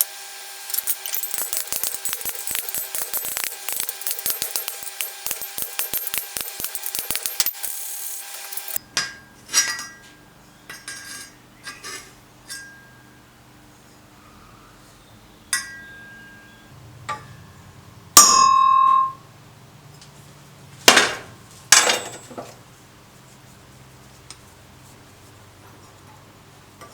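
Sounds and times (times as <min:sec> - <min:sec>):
loud metallic ring: 0:00.7 - 0:08.8, 0:18.2 - 0:19.3
rattling clicks: 0:00.7 - 0:08.8
steel tools clinking and tapping: 0:00.7 - 0:12.8, 0:21.7 - 0:22.6.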